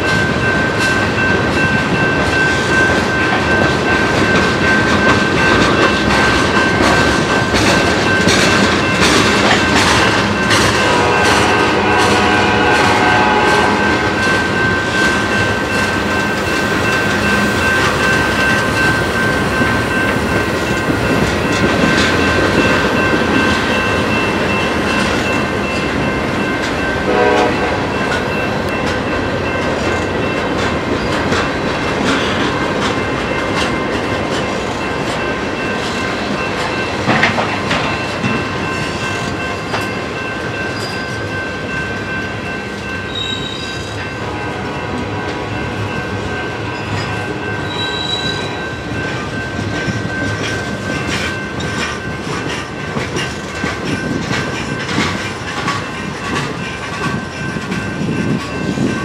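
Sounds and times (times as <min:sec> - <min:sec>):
train wheels rumbling and clacking: 0:00.0 - 0:59.0
high-pitched wheel squeal: 0:43.1 - 0:43.9, 0:47.6 - 0:48.6.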